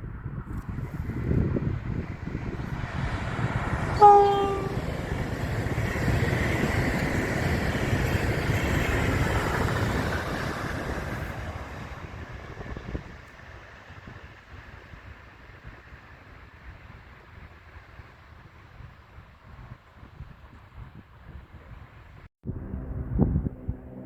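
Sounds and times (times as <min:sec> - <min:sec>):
passing train rumble and rail noise: 0:00.0 - 0:24.0
train horn blast: 0:03.9 - 0:05.0, 0:22.5 - 0:24.0.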